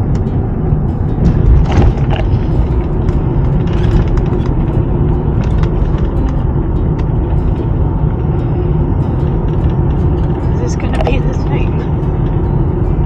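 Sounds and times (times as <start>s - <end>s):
engine and road rumble: 0.0s - 13.0s
light clicks and rattles: 9.2s - 12.8s.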